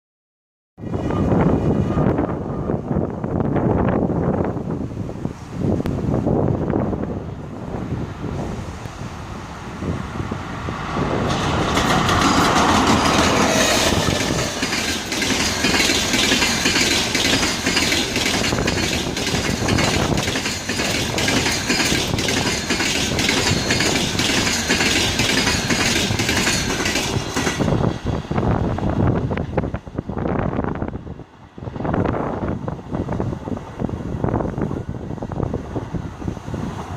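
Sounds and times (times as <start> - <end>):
train wheels clicking over rail joints: 11.2 - 28.1.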